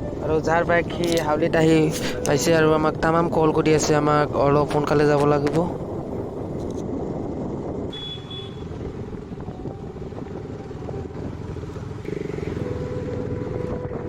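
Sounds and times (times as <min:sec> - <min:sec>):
road noise: 0:00.0 - 0:14.0
wind noise: 0:00.0 - 0:14.0
motorcycle engine running: 0:05.8 - 0:14.0.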